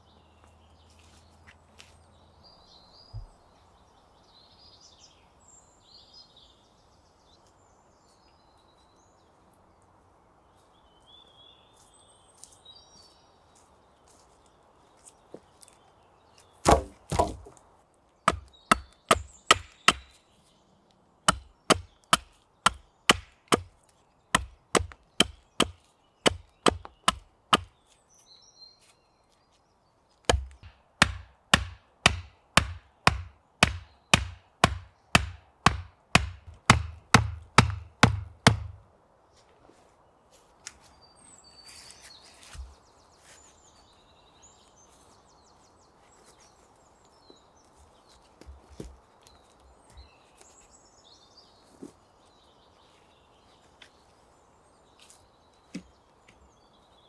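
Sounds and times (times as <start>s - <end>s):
firewood being chopped: 16.6s - 17.6s, 18.3s - 20.2s, 21.3s - 23.8s, 24.4s - 27.8s, 30.3s - 38.8s.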